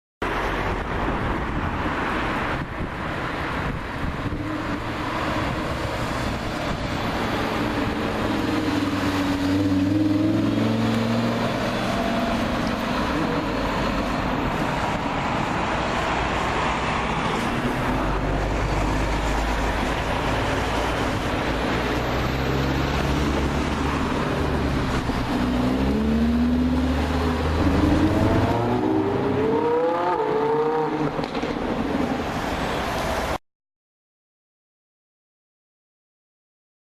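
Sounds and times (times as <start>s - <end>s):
sports car engines revving: 19.8s - 31.4s.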